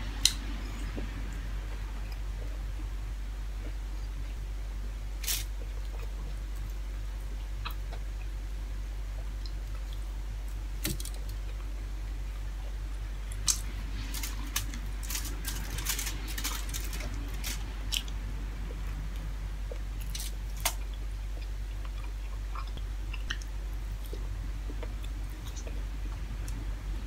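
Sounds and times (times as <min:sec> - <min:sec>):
low steady hum: 0:00.0 - 0:27.0
crunchy chewing: 0:13.3 - 0:25.8.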